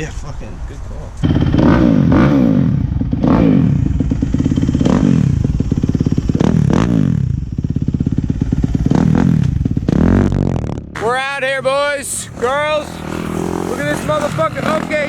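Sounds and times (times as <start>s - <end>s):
small motorbike engine revving: 1.2s - 7.3s, 11.7s - 15.0s.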